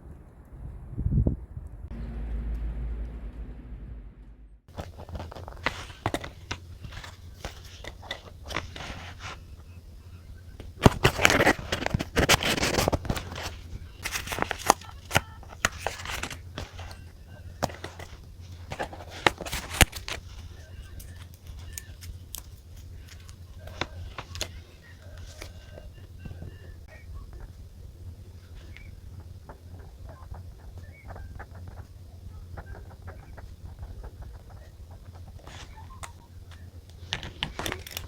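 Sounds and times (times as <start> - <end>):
steady low hum: 0.0 - 38.0
paper rustling and crinkling: 4.7 - 9.7, 10.6 - 26.6, 32.8 - 38.0.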